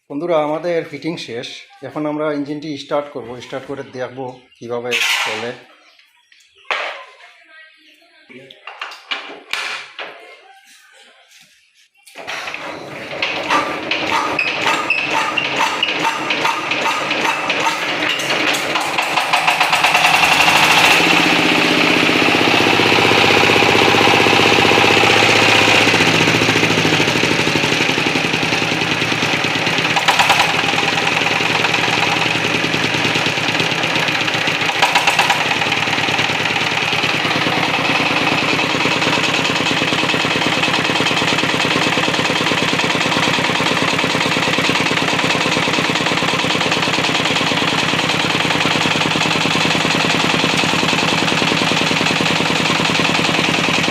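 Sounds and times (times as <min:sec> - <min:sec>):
diesel engine running: 0:12.5 - 0:53.9
sharp engine knocks: 0:13.0 - 0:26.8, 0:28.8 - 0:53.9.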